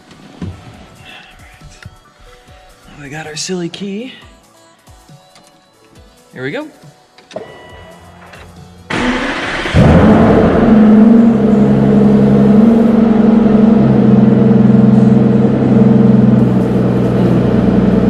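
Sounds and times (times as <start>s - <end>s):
car engine starting and idling: 8.2s - 18.0s
engine starter cranking: 8.4s - 10.9s.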